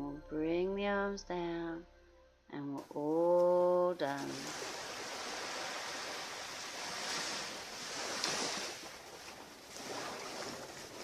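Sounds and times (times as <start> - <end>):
ocean surf on beach: 4.1 - 11.0.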